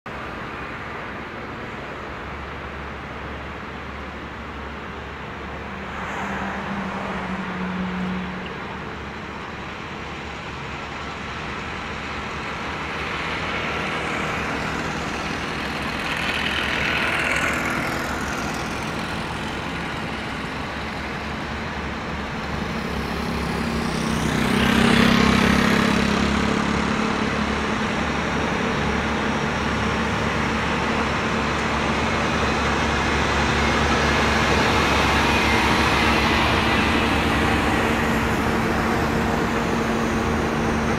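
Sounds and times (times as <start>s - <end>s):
heavy trucks driving past: 0.1s - 40.9s.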